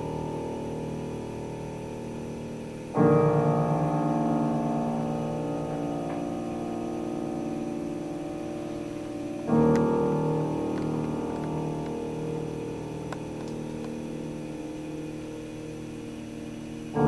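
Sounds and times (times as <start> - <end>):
piano playing classical piece: 0.0 - 17.0.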